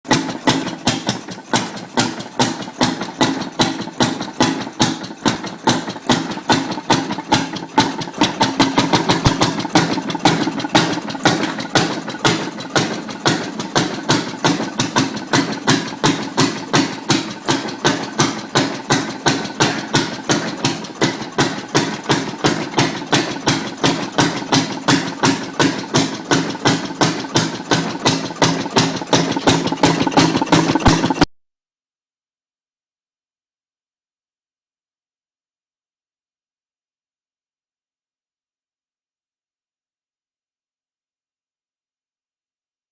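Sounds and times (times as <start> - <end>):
antique engine running steadily: 0.1 - 31.3.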